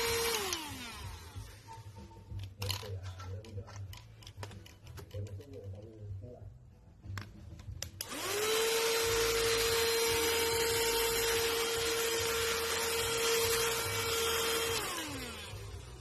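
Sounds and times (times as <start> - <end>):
handheld vacuum cleaner running: 0.0 - 2.4, 8.0 - 16.0.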